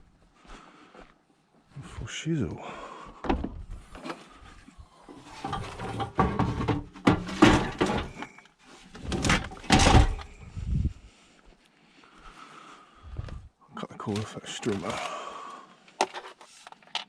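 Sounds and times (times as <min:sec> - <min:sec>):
scrap metal clunking and clattering: 0:05.1 - 0:10.4.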